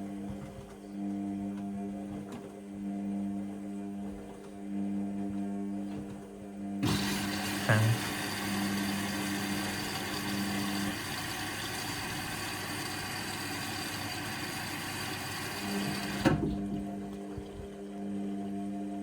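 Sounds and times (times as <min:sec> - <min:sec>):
motor hum: 0:00.1 - 0:19.0
water rushing into washing machine: 0:06.8 - 0:17.2.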